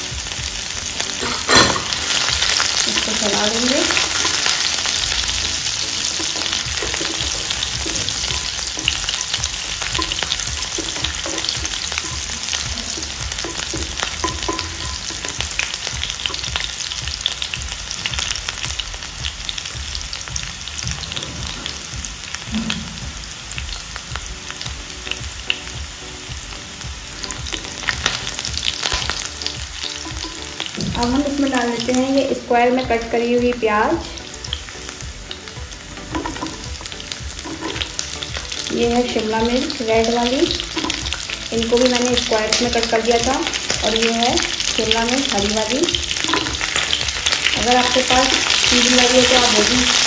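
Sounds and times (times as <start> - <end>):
garlic sizzling in hot oil: 0.0 - 50.0
wooden spatula stirring: 1.2 - 17.4, 35.7 - 42.3, 43.4 - 50.0.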